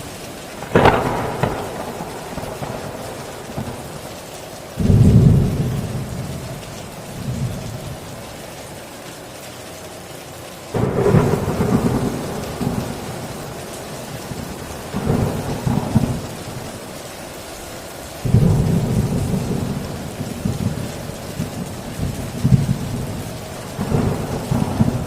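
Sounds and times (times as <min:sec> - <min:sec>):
thunder rumbling: 0:00.0 - 0:08.3, 0:10.7 - 0:25.0
heavy rain on a tin roof: 0:00.0 - 0:25.0.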